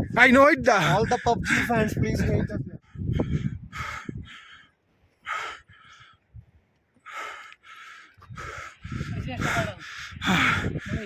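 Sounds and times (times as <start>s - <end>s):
person breathing hard: 2.8s - 6.2s, 7.0s - 11.0s.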